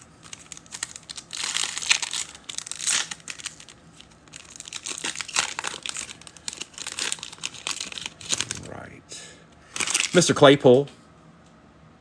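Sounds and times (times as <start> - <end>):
foil wrapper crinkling and tearing: 0.0 - 8.6, 9.7 - 10.4.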